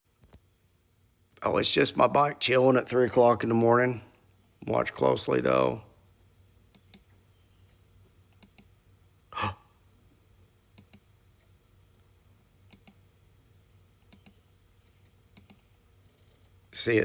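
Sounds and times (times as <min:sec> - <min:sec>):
faint steady hum: 0:00.1 - 0:17.0
person breathing or sighing: 0:09.3 - 0:09.7.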